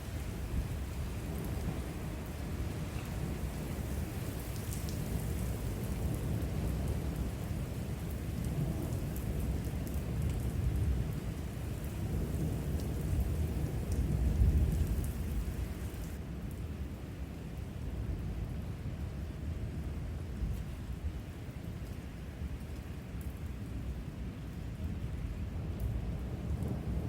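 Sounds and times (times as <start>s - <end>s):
low rumble of thunder: 0.0s - 16.2s, 24.8s - 27.0s
steady rain: 0.0s - 27.0s.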